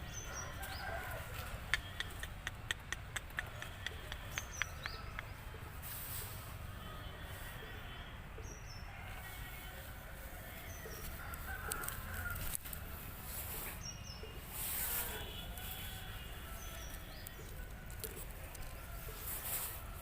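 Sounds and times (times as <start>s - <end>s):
rooster crowing: 0.2s - 1.7s, 8.9s - 12.6s.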